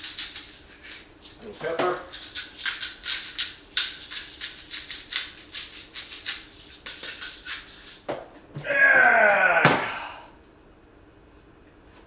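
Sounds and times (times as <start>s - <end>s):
pepper grinder strokes: 0.0s - 8.0s.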